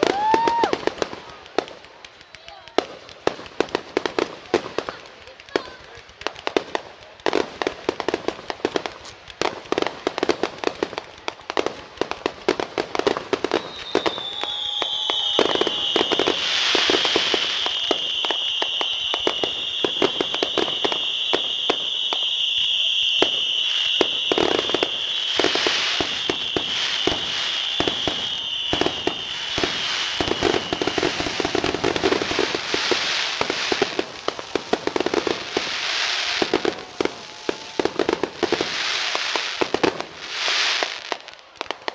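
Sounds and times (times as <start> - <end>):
fireworks bangs and crackling: 0.0 - 41.9
high whistling hiss: 13.4 - 41.3.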